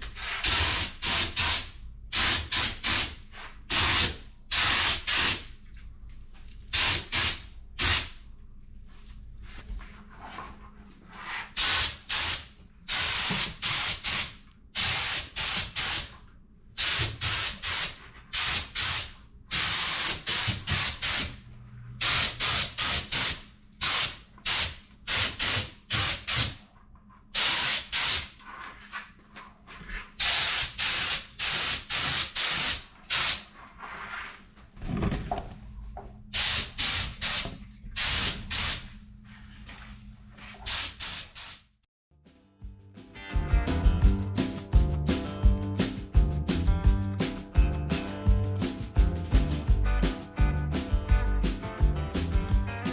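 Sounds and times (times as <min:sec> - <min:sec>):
paint sprayer hissing: 0:00.2 - 0:05.5, 0:06.7 - 0:08.1, 0:11.6 - 0:16.1, 0:16.8 - 0:21.4, 0:22.0 - 0:26.6, 0:27.4 - 0:28.3, 0:30.2 - 0:33.4, 0:36.4 - 0:38.8, 0:40.7 - 0:41.7.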